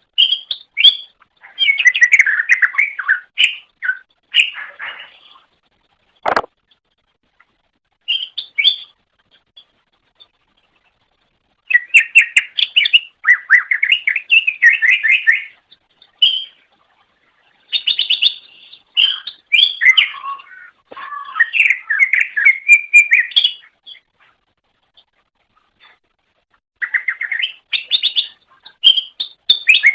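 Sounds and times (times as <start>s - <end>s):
bird singing chirps and whistles: 0.2s - 4.8s, 8.1s - 9.0s, 11.7s - 15.6s, 16.2s - 16.6s, 17.7s - 24.1s, 26.8s - 29.9s
sharp click: 6.2s - 6.5s.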